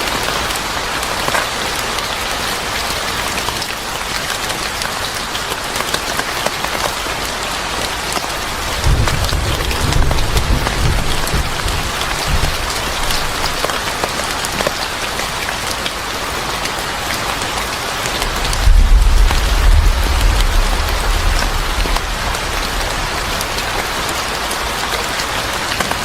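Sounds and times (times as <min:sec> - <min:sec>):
sharp drips and ticks: 0:00.0 - 0:26.0
steady rain: 0:00.0 - 0:26.0
distant thunder rumbling: 0:08.4 - 0:14.3, 0:18.1 - 0:25.5.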